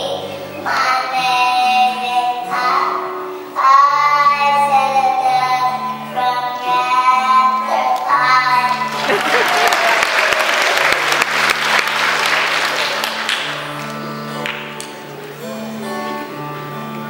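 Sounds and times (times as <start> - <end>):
child singing: 0.0 - 8.9
instrumental accompaniment: 10.9 - 17.0.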